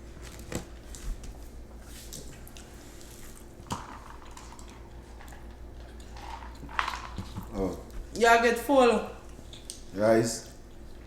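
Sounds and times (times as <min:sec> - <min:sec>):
chewing and wet mouth noises: 0:04.5 - 0:06.7, 0:09.2 - 0:11.0.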